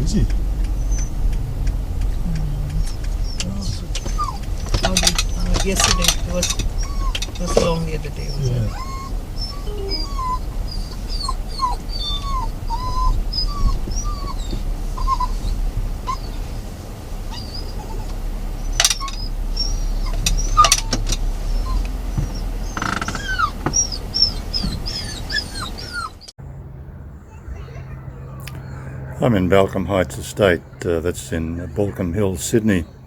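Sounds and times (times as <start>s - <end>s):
dogs whining and whimpering: 0.7s - 1.2s, 2.7s - 16.6s, 17.2s - 26.3s.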